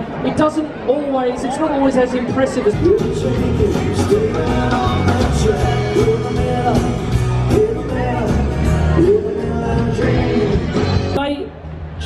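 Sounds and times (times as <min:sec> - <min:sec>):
bass: 0:02.2 - 0:12.0
rock music: 0:02.2 - 0:12.0
steady drum beat: 0:02.7 - 0:11.1
person singing: 0:02.8 - 0:10.9.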